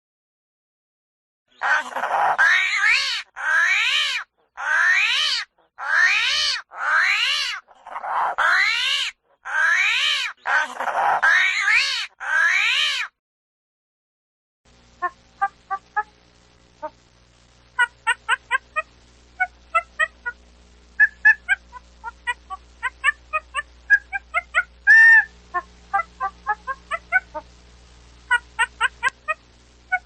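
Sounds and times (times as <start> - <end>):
animal calling: 1.6 - 13.2, 17.8 - 20.4, 21.0 - 27.5, 28.3 - 30.0.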